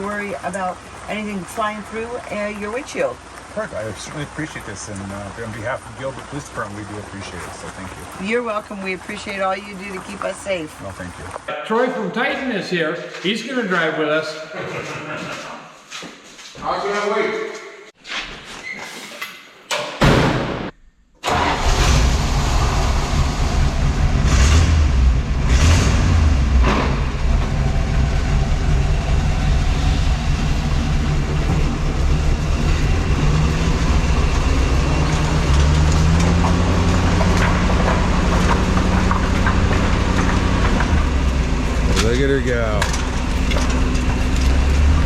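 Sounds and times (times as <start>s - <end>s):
tracked vehicle engine running: 0.0s - 11.5s, 21.2s - 45.0s.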